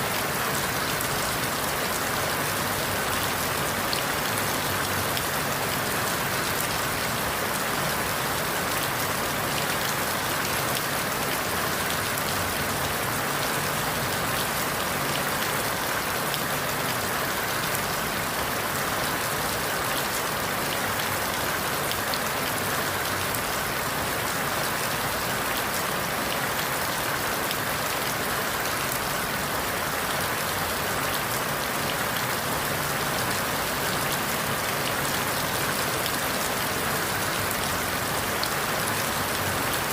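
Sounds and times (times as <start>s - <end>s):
rain falling through leaves: 0.0s - 39.9s.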